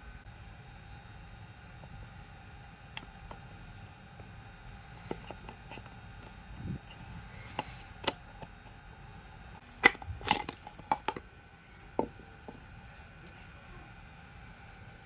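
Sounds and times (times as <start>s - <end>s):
clatter of metal parts: 9.8s - 11.2s
small metal parts clinking: 9.8s - 11.2s.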